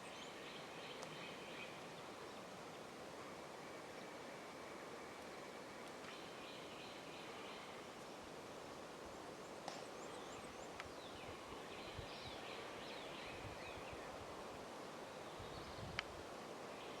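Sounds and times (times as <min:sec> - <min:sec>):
songbirds singing: 0:00.0 - 0:08.2, 0:09.1 - 0:17.0
steady hiss: 0:00.0 - 0:17.0
small sharp clicks: 0:09.6 - 0:09.8.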